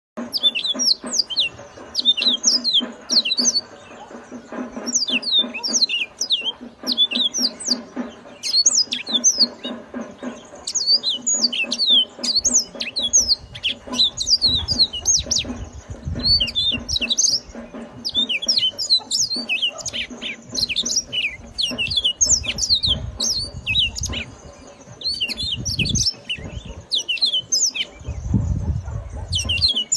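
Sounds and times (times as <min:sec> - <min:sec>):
canary singing: 0:00.2 - 0:29.9
low pulsing hum: 0:00.2 - 0:29.9.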